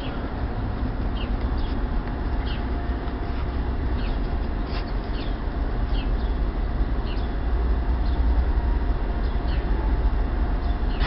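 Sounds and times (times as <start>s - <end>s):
birds chirping: 0.0s - 3.3s, 3.9s - 7.4s, 9.1s - 11.0s
steady low rumble: 0.0s - 11.0s.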